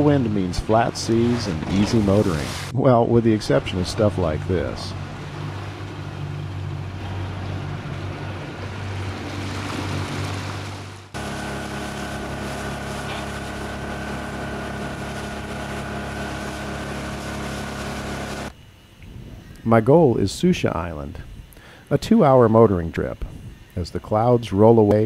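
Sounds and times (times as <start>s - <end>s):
outboard motor running: 0.0s - 18.6s
water noise: 0.0s - 20.8s
wind noise: 19.0s - 20.4s, 23.2s - 23.8s.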